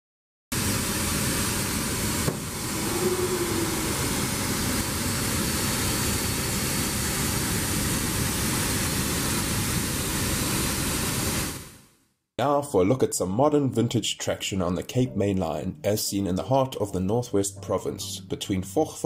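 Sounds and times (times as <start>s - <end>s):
steady rushing noise with rumble: 1.9s - 8.1s
low hum rising and falling: 2.4s - 7.3s.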